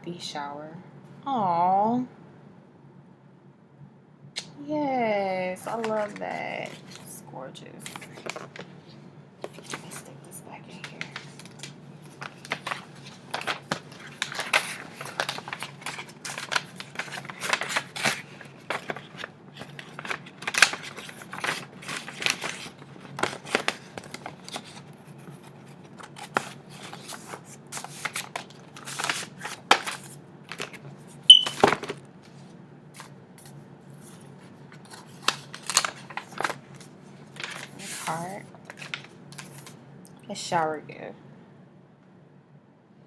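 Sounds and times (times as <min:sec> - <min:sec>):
paper rustling and crinkling: 0:05.7 - 0:07.2, 0:07.9 - 0:08.7, 0:09.4 - 0:10.0, 0:10.8 - 0:39.8.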